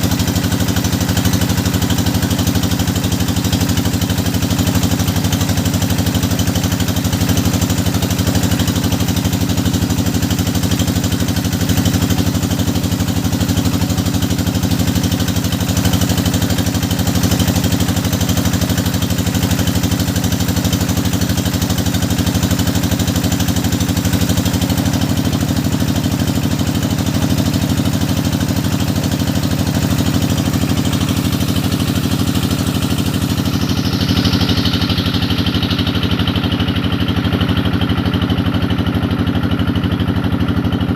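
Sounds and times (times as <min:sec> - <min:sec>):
drilling rig engine drone: 0:28.5 - 0:37.2.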